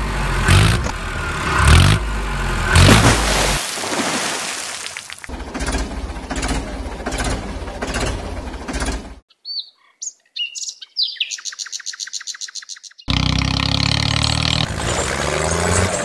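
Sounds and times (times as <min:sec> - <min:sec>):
loud engine running: 0:00.0 - 0:03.3, 0:05.3 - 0:09.2, 0:13.1 - 0:16.0
engine running: 0:00.0 - 0:03.7, 0:04.6 - 0:09.2, 0:13.1 - 0:16.0
birds chirping: 0:09.3 - 0:15.1.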